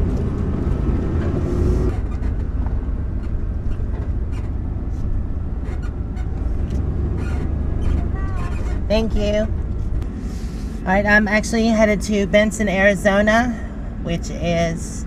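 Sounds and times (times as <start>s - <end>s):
engine and road rumble: 0.0s - 15.0s
engine drone: 0.0s - 15.0s.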